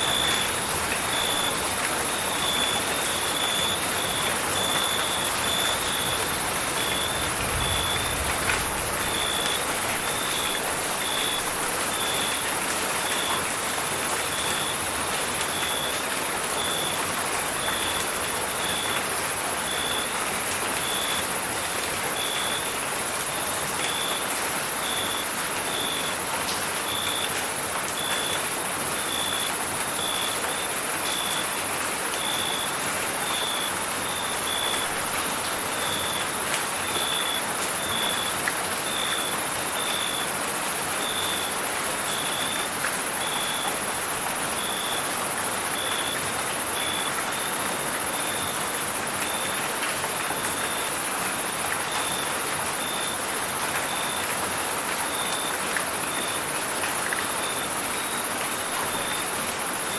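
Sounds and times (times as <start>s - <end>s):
rain hissing: 0.0s - 15.8s.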